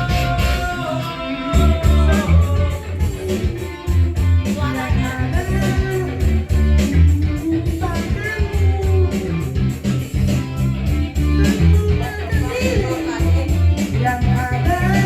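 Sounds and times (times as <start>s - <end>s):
bass: 0.0s - 15.0s
guitar melody: 0.0s - 15.0s
steady drum beat: 0.0s - 15.0s.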